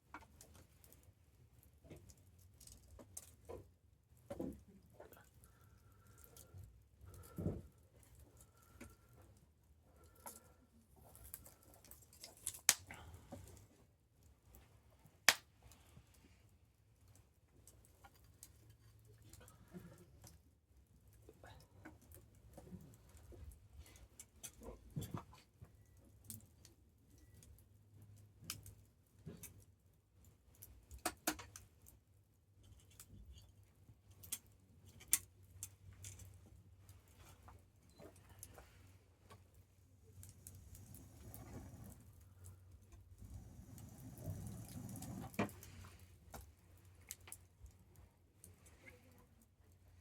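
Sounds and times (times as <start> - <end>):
campfire crackling: 10.0 - 13.8, 34.2 - 48.7
campfire crackling and popping: 12.3 - 13.0, 15.2 - 15.5, 40.1 - 47.8
sharp pops of burning wood: 12.4 - 12.9, 15.3 - 15.5.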